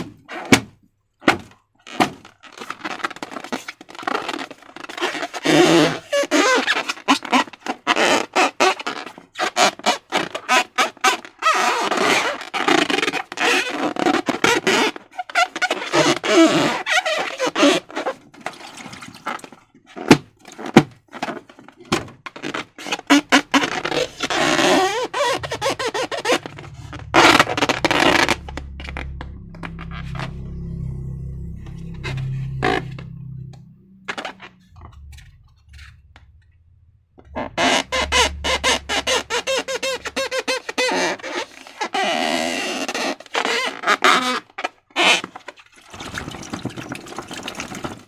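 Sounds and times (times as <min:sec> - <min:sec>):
low background music: 0:23.6 - 0:40.4.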